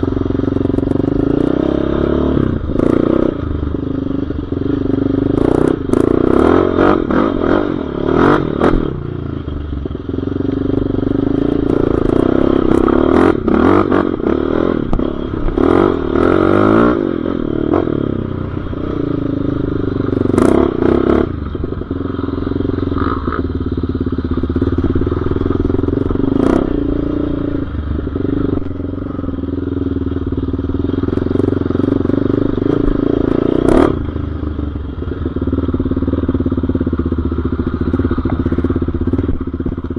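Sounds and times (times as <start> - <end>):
off-road vehicle engine revving: 0.0 - 3.5, 4.6 - 9.0, 10.5 - 29.4, 30.9 - 34.1
knocks and clatter over rough ground: 37.7 - 39.9.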